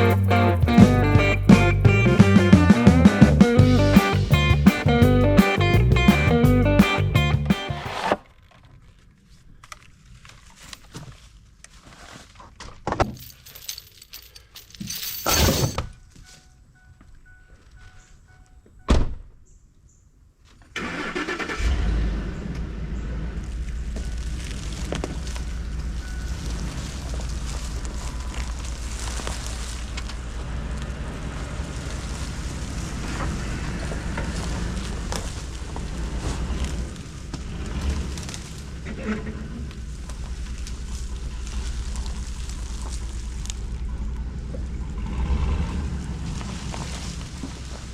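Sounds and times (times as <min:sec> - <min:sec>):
truck engine starting and running: 0:00.0 - 0:08.3, 0:20.8 - 0:47.9.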